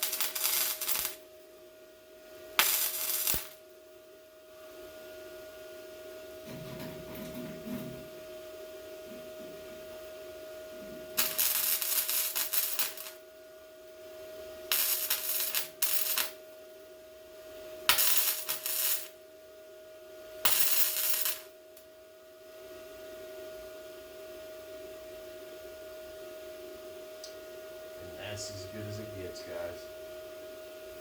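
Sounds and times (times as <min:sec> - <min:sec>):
welding crackle: 0:00.0 - 0:01.3, 0:02.6 - 0:03.6, 0:11.2 - 0:13.2, 0:14.7 - 0:16.4, 0:17.9 - 0:19.1, 0:20.5 - 0:21.5
steady hum: 0:00.0 - 0:31.0.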